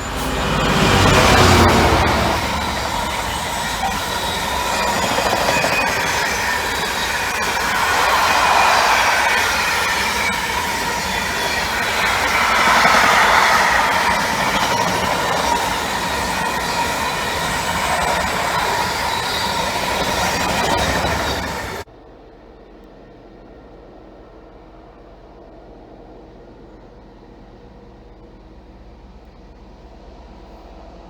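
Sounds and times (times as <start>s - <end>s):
high wavering wheel squeal: 0.0s - 21.9s
train wheels rolling on rails: 0.0s - 21.9s.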